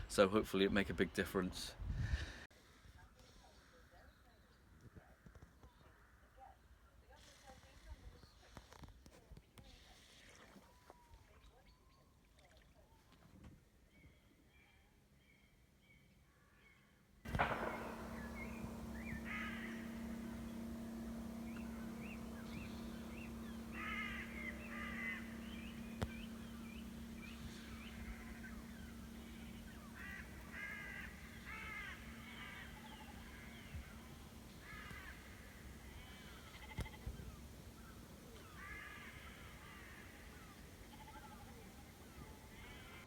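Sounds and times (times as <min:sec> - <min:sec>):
birds calling: 0:17.3 - 0:43.0
faint bird chirps: 0:17.3 - 0:43.0
steady low hum: 0:17.3 - 0:43.0.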